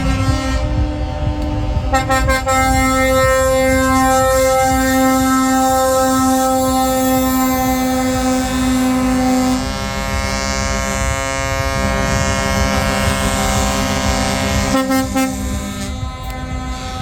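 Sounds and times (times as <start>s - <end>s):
truck air horn blasts: 0.0s - 17.0s
truck engines rumbling: 0.0s - 17.0s.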